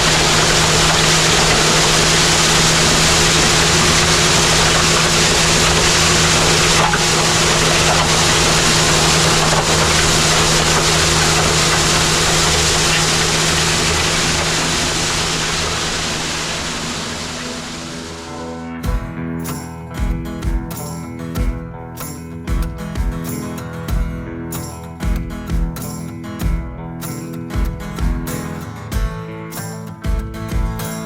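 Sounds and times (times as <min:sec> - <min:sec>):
thick rushing noise: 0:00.0 - 0:19.0
tractor engine drone: 0:00.0 - 0:22.5.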